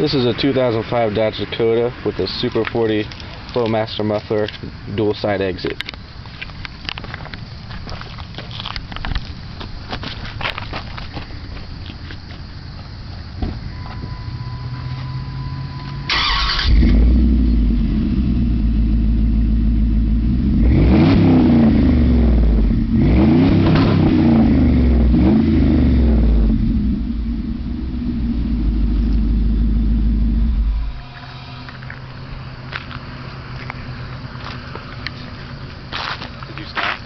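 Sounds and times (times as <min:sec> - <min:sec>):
truck exhaust revving and idling: 0:14.0 - 0:37.0.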